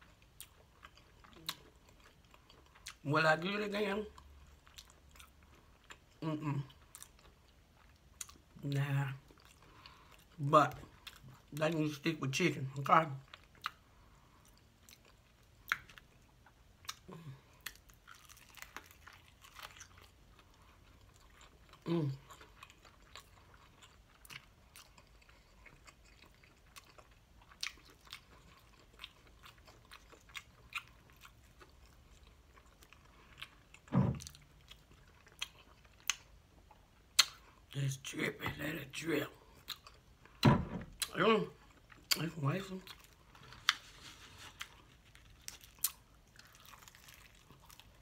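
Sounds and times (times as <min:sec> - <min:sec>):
chewing crispy fried chicken: 0:00.0 - 0:40.4, 0:41.0 - 0:48.0
wet mouth clicks and smacks: 0:37.2 - 0:37.4.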